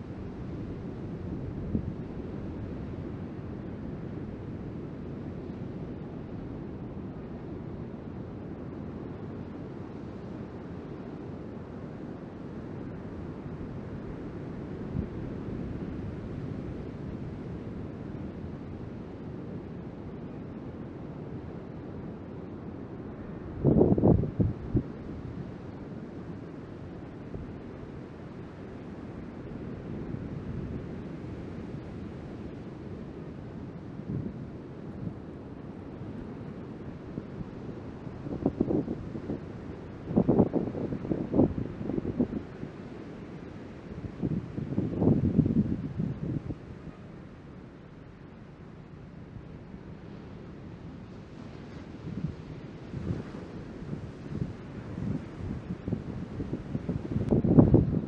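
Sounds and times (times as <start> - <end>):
wind buffeting microphone: 44.1 - 46.7, 52.1 - 58.0.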